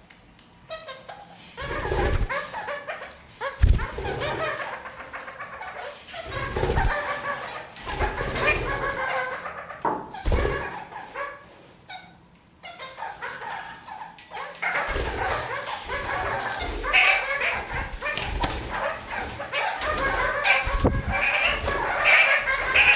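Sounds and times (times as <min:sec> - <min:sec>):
parakeets chattering: 0:00.7 - 0:22.9
low thumps: 0:03.6 - 0:04.0.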